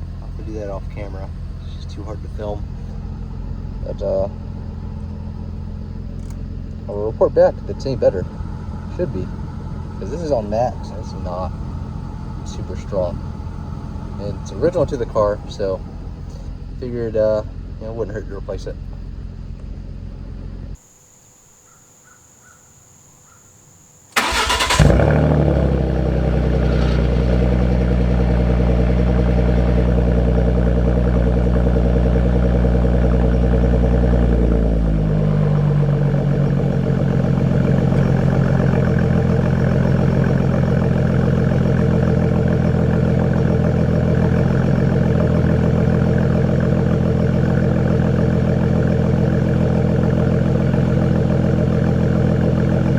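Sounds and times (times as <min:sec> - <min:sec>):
car engine idling: 0:00.0 - 0:52.9
starter cranking: 0:24.2 - 0:25.3.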